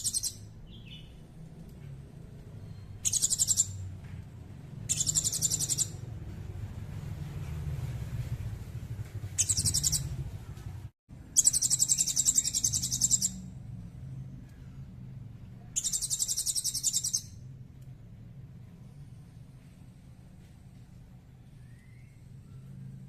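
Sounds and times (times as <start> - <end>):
songbird high rapid trill: 0.0 - 1.0, 2.8 - 3.8, 4.8 - 6.0, 9.4 - 10.2, 11.4 - 13.4, 15.8 - 17.4
low steady background hum: 0.0 - 23.0.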